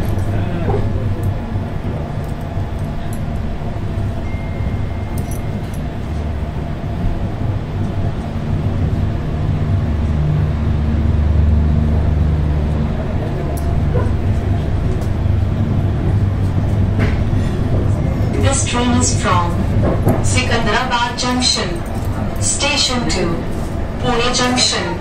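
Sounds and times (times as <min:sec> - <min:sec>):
train coach rumble and hum: 0:00.0 - 0:25.0.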